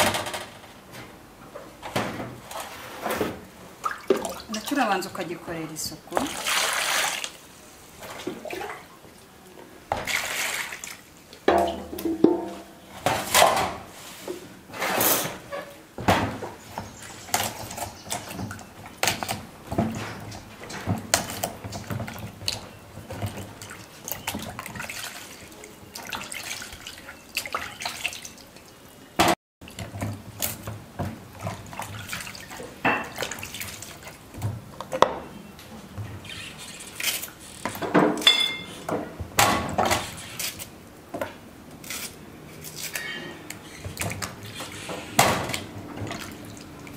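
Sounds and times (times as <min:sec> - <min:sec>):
water splashing: 0:03.8 - 0:05.0, 0:06.1 - 0:09.2, 0:09.9 - 0:12.5, 0:21.1 - 0:28.9, 0:31.3 - 0:34.4, 0:43.9 - 0:46.9.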